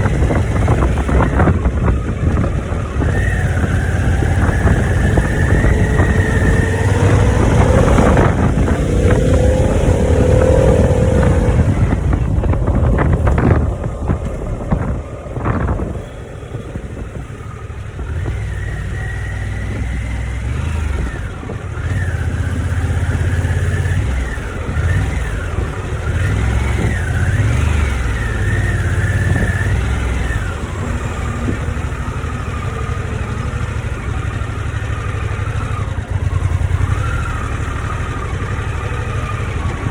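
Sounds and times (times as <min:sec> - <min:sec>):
wind rush: 0:00.0 - 0:20.1
motorcycle engine rumble: 0:00.0 - 0:39.9.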